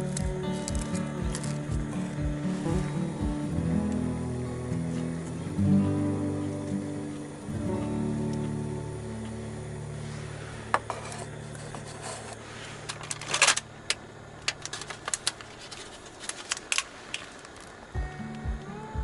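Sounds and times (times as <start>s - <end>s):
background music: 0.0s - 9.8s, 18.0s - 19.0s.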